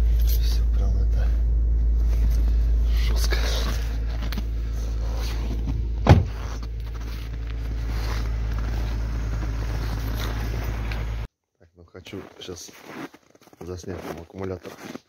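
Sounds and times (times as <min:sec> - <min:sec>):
car engine idling: 0:00.0 - 0:11.3
loud thump: 0:05.6 - 0:06.6.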